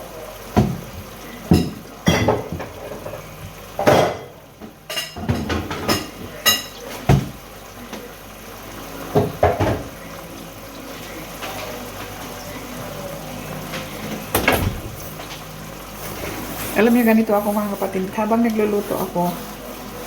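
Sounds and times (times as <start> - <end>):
kitchenware clinking and clattering: 1.5 - 7.4, 9.1 - 10.0.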